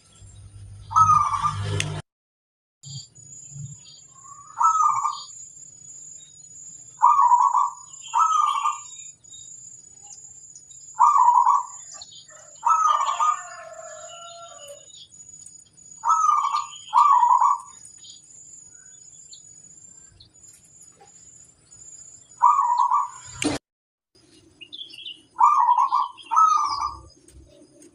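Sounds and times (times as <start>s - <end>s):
dove cooing: 0.9s - 1.6s, 4.4s - 5.3s, 7.0s - 8.9s, 11.0s - 14.8s, 16.0s - 17.8s, 22.4s - 23.3s, 25.4s - 27.1s.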